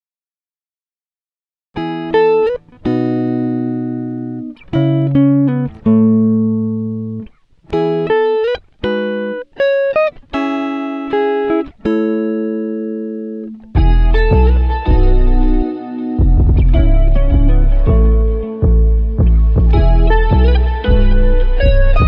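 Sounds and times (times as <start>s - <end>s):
electric guitar riff: 1.8s - 22.0s.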